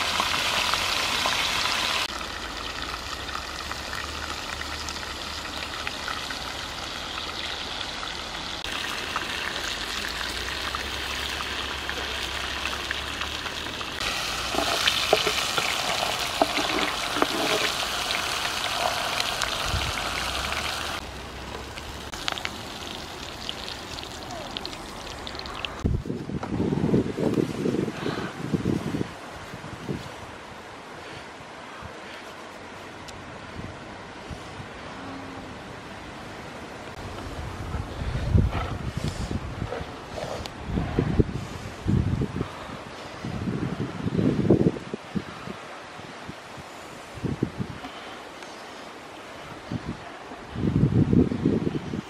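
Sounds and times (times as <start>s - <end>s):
food sizzling in a pan: 13.9s - 21.0s.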